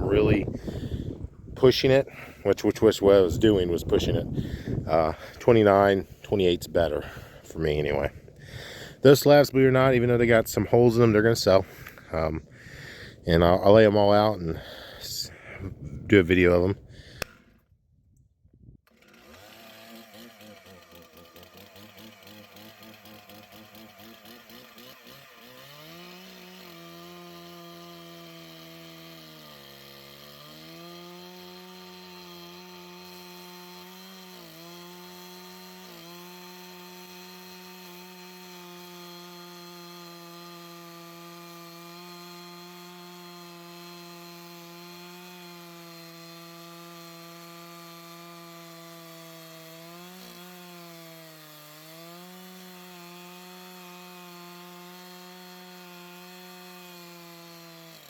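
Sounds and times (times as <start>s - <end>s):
band blade cutting log: 16.5s - 17.6s, 18.9s - 58.0s.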